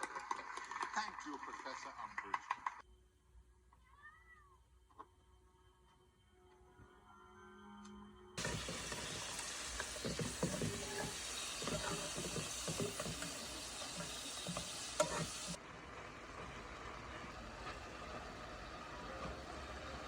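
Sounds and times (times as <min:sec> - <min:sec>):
utensil stirring and tapping: 0:08.4 - 0:15.6
food sizzling in a pan: 0:08.4 - 0:16.0.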